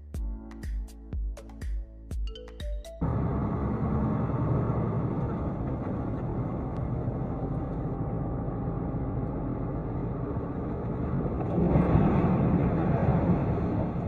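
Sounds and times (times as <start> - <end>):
vehicle road noise: 3.0 - 14.0.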